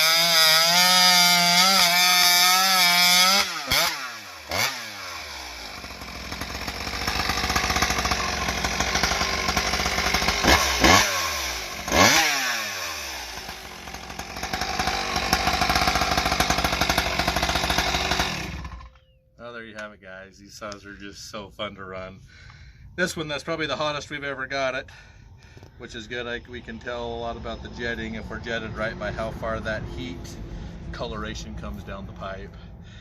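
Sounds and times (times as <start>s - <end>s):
chainsaw cutting wood at full throttle: 0.0s - 19.0s.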